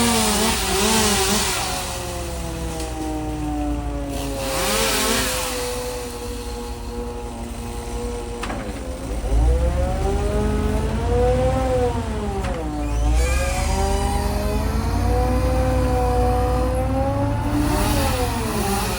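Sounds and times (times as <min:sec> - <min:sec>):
engine running: 0:00.0 - 0:18.9.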